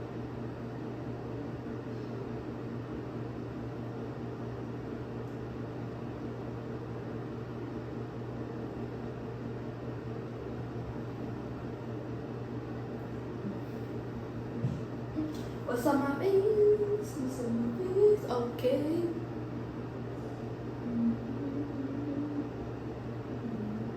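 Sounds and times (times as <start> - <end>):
fan humming: 0.0 - 23.9.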